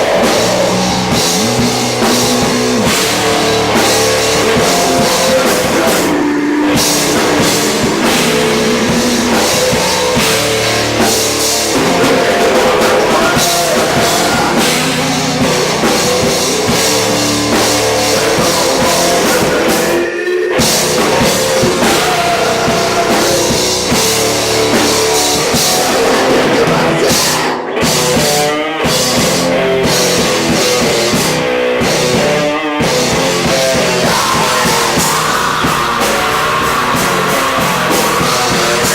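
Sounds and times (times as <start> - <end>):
rock band playing loud: 0.0 - 38.9.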